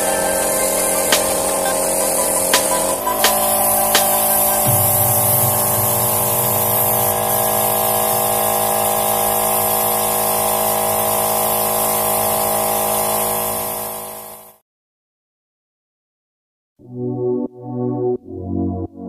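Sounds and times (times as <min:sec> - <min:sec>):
air compressor drone: 0:00.0 - 0:14.6
paint spray gun hiss: 0:00.0 - 0:14.6.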